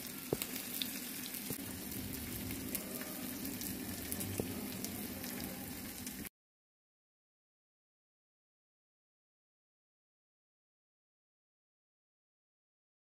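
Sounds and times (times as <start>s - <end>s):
food sizzling in a pan: 0.0s - 6.3s.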